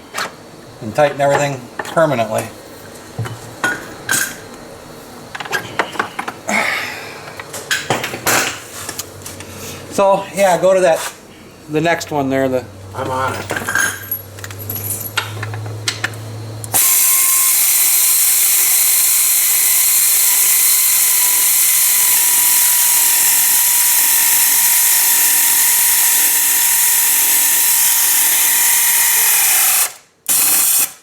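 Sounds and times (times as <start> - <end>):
power tool hiss and whine: 16.5 - 31.0.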